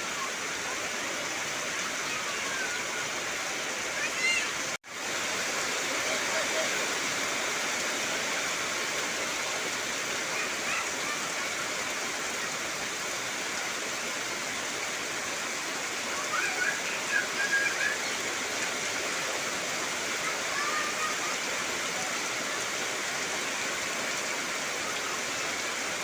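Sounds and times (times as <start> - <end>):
heavy rain on trees: 0.0 - 26.0.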